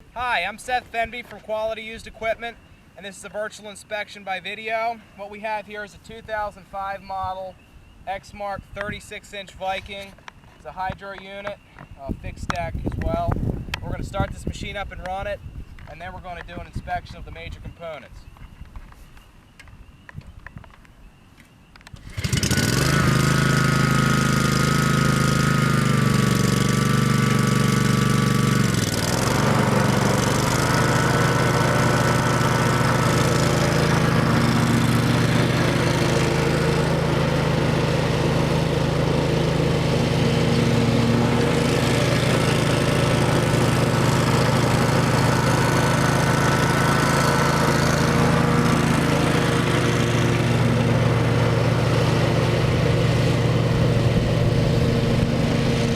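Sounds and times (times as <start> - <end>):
mower engine running: 21.9 - 55.9.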